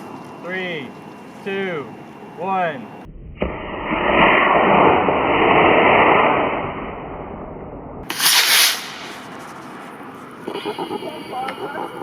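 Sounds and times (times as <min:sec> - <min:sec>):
rocket motor hissing: 0:08.1 - 0:09.5.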